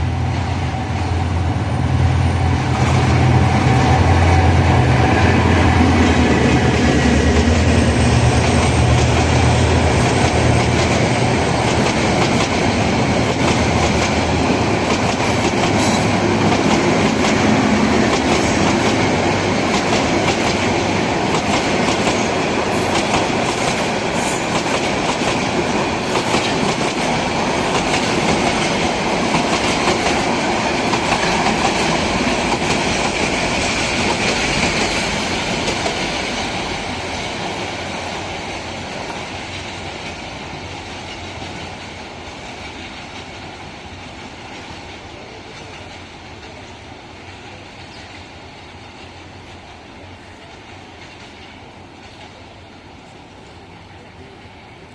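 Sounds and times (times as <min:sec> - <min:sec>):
train engine drone: 0:00.0 - 0:54.9
train wheels clacking over rail joints: 0:02.6 - 0:43.6.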